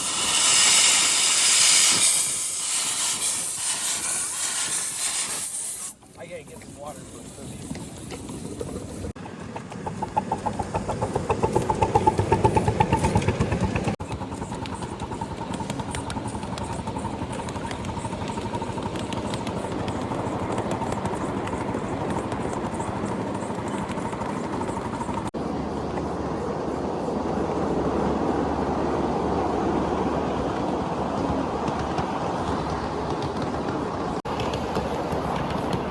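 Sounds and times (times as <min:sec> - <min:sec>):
steam locomotive chuffing: 0:00.0 - 0:25.3.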